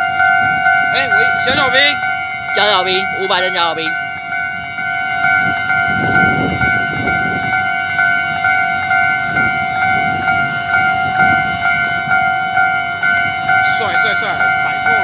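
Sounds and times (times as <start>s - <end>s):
level crossing alarm pulsing tone: 0.0s - 15.0s
train wheels rumbling on rails: 0.0s - 15.0s.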